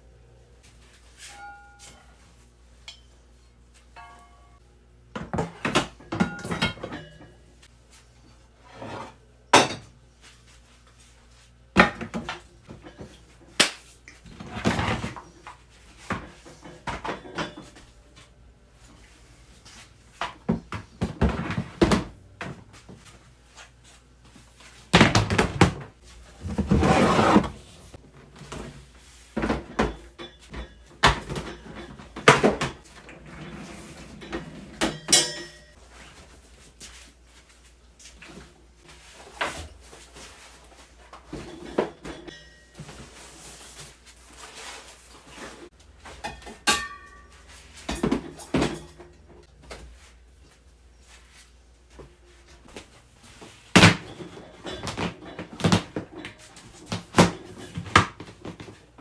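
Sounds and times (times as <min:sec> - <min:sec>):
rustling and scraping: 0:26.0 - 0:35.1, 0:35.7 - 0:46.6.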